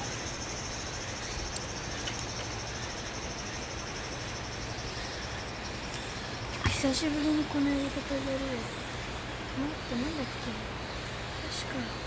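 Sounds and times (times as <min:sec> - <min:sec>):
insects chirring: 0:00.0 - 0:12.0
faint ticks: 0:01.4 - 0:02.6.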